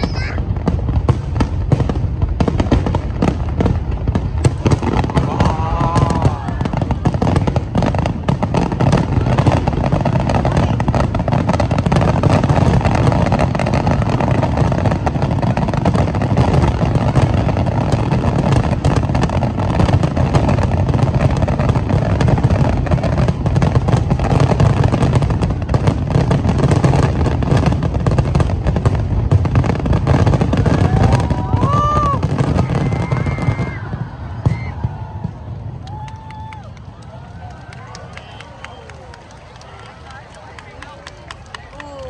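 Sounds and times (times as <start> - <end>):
fireworks bursting: 0.0 - 37.0.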